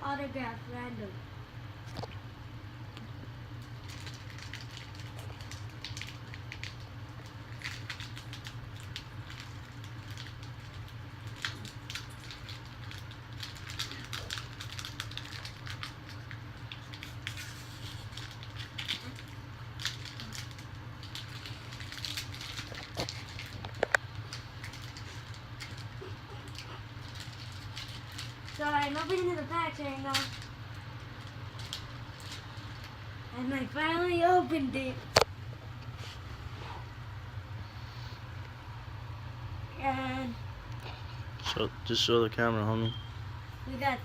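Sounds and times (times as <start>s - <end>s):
steady low hum: 0.0s - 44.0s
foil wrappers crinkling: 3.6s - 33.0s.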